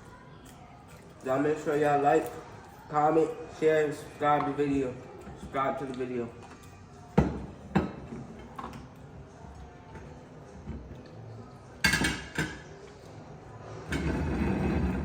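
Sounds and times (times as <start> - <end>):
dishes and cutlery clinking: 4.3 - 13.0.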